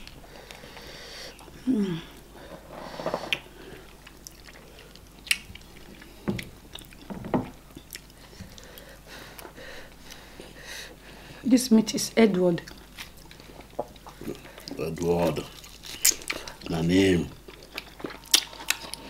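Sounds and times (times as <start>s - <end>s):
chewing and lip smacking: 3.3s - 10.3s, 12.6s - 16.7s, 17.4s - 19.0s.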